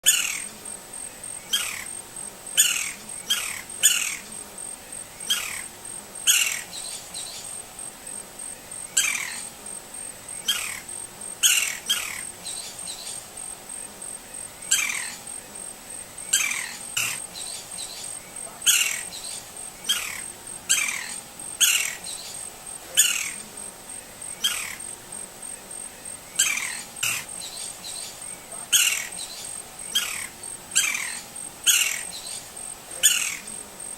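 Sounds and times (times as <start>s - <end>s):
woodpecker calling: 0.0s - 0.6s, 1.3s - 2.0s, 2.6s - 4.4s, 5.2s - 7.6s, 8.8s - 9.5s, 10.4s - 13.3s, 14.6s - 15.4s, 16.2s - 23.5s, 24.2s - 25.0s, 26.3s - 33.6s.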